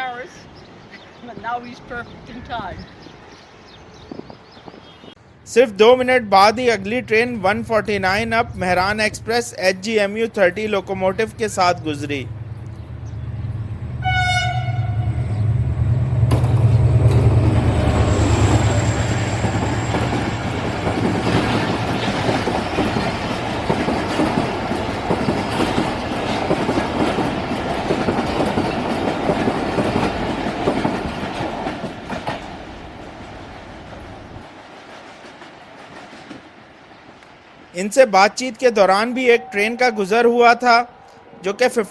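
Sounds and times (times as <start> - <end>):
locomotive engine rumbling: 5.2 - 37.8
train horn blast: 13.5 - 15.5, 39.2 - 41.5
coaches clattering over rails: 16.2 - 37.4.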